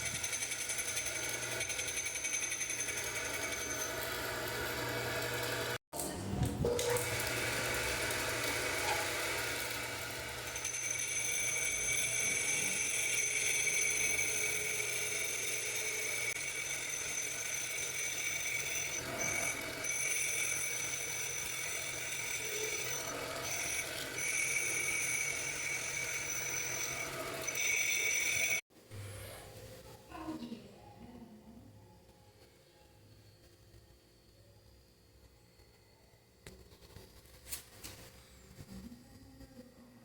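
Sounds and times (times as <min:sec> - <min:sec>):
lathe high-pitched whine: 0:09.3 - 0:28.6.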